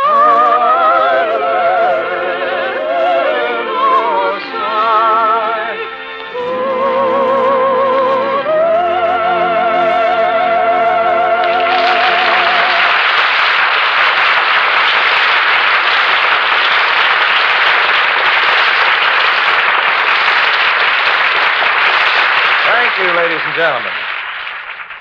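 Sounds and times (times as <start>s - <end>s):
orchestra playing: 0.0s - 16.1s
audience applauding: 11.0s - 25.0s.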